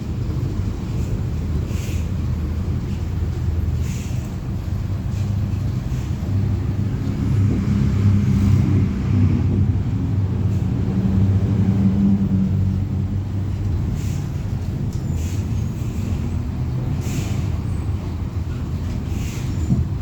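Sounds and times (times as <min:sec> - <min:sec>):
bus diesel engine running: 0:00.0 - 0:20.0
air brake hisses: 0:01.7 - 0:02.1, 0:03.8 - 0:04.3, 0:13.9 - 0:14.3, 0:15.1 - 0:16.2, 0:17.0 - 0:17.6, 0:19.1 - 0:19.8.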